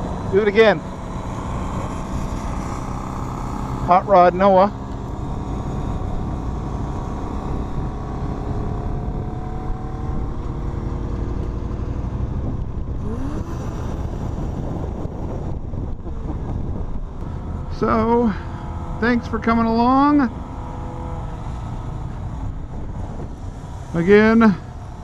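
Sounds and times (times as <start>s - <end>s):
motorcycle engine rumble: 0.0s - 25.0s
wind noise on microphone: 5.0s - 17.6s, 21.2s - 23.8s.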